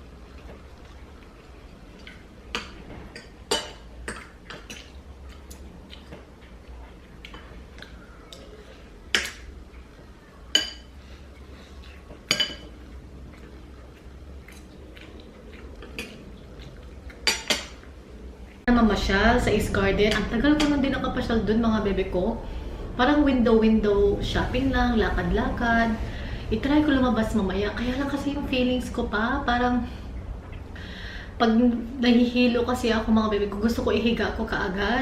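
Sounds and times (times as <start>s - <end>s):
cutlery clinking on a plate: 10.5s - 10.9s, 12.2s - 12.8s, 17.2s - 17.8s.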